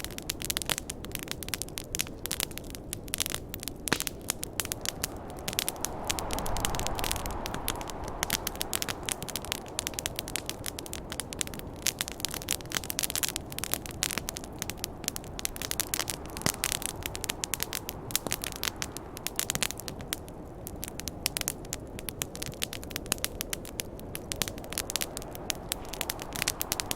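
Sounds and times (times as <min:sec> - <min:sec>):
campfire crackling: 0:00.0 - 0:26.9
low rushing noise: 0:04.4 - 0:11.6, 0:25.0 - 0:26.9.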